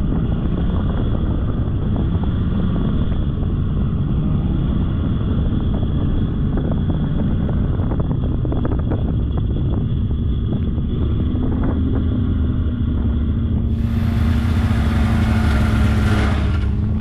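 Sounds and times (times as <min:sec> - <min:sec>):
snowmobile engine running: 0:00.0 - 0:17.0
loud rushing hiss: 0:13.7 - 0:16.2.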